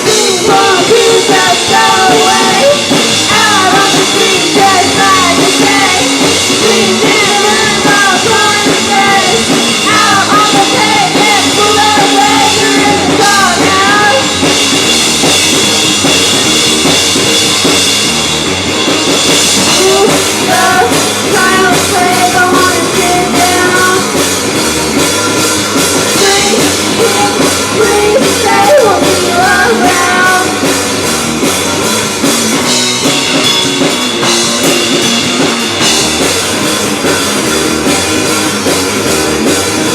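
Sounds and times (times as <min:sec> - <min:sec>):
person singing: 0:00.0 - 0:14.6, 0:19.7 - 0:24.2, 0:26.1 - 0:30.8
drum kit: 0:00.0 - 0:39.9
rock band playing: 0:00.0 - 0:39.9.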